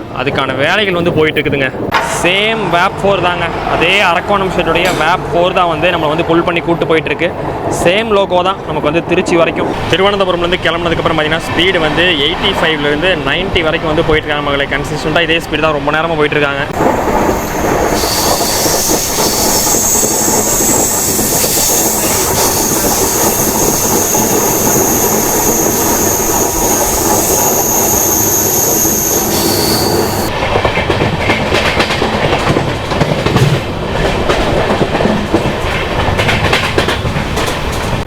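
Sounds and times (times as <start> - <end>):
train wheels clattering on rails: 1.8 - 5.9, 16.7 - 38.0
steady high whine: 16.8 - 30.3.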